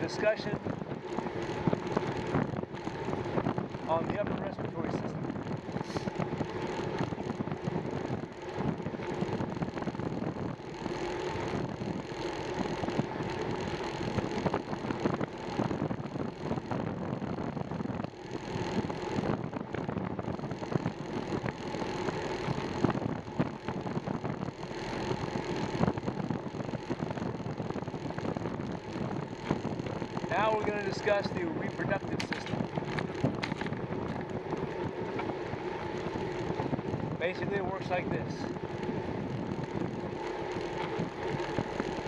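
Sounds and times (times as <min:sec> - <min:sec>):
bicycle tyres rolling on pavement: 0:00.0 - 0:42.0
wind rushing over microphone: 0:00.0 - 0:42.0.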